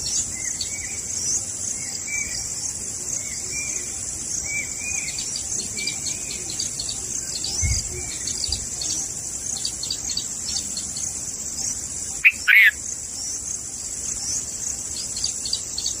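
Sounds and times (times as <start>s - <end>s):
insect drone: 0.0s - 16.0s
bird chirps: 3.2s - 13.4s.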